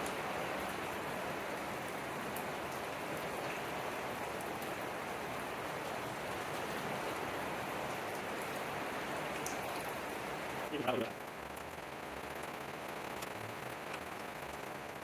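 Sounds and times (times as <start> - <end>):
steady rain pitter-patter: 0.0 - 15.0.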